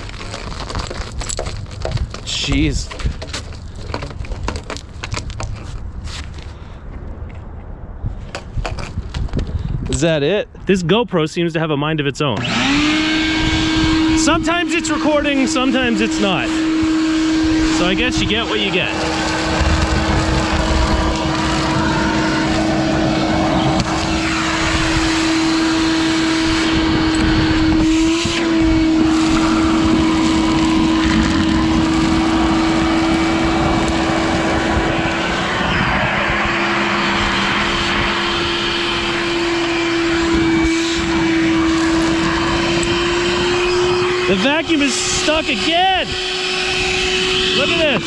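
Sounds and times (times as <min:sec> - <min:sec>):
shop vacuum running: 0:12.4 - 0:48.0.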